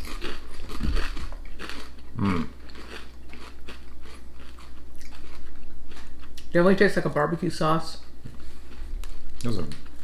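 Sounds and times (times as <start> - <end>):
people chewing crisps: 0.0 - 6.8, 8.4 - 10.0
person humming: 2.2 - 2.5.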